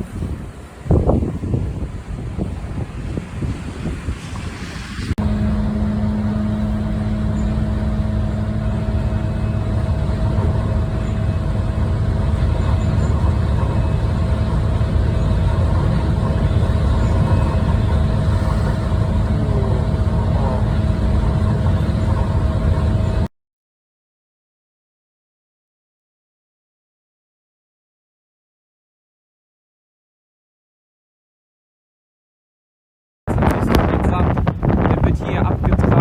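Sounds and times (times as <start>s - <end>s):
vehicle engine idling: 5.2s - 23.3s.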